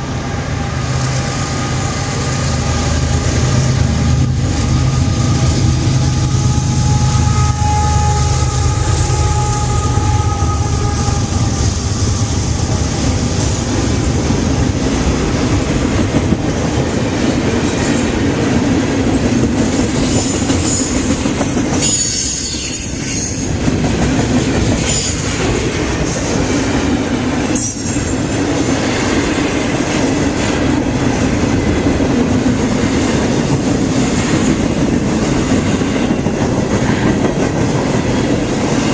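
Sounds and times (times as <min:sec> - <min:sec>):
locomotive diesel drone: 0:00.0 - 0:15.5
train wheels rumbling on rail: 0:00.0 - 0:38.9
sharp clanks of freight cars: 0:12.2 - 0:14.8, 0:19.1 - 0:28.8.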